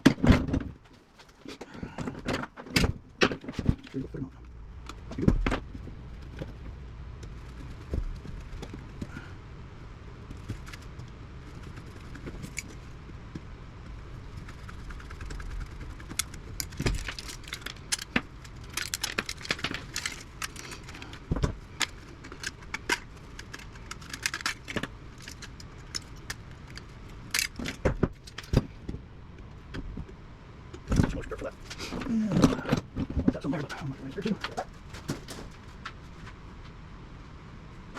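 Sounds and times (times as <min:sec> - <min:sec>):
metal parts clinking: 0:16.1 - 0:21.2, 0:21.8 - 0:28.6.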